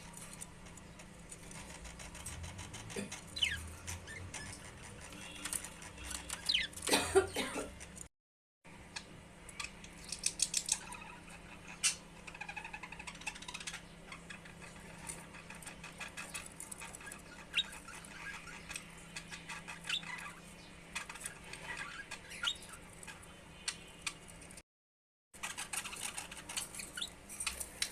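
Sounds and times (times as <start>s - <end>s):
budgerigars chirping: 1.5s - 6.9s, 9.6s - 24.2s, 25.4s - 27.6s.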